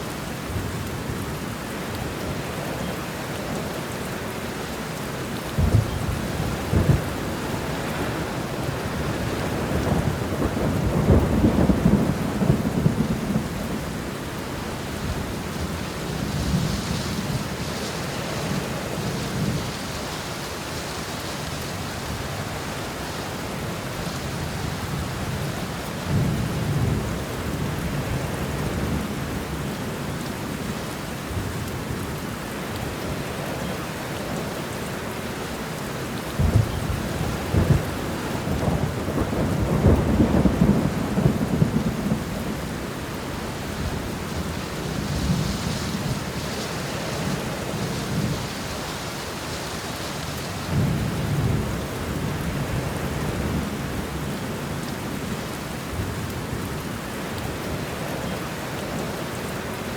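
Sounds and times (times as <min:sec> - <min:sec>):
steady rain falling: 0:00.0 - 0:59.9
rolling thunder rumble: 0:05.6 - 0:14.1, 0:36.4 - 0:48.9.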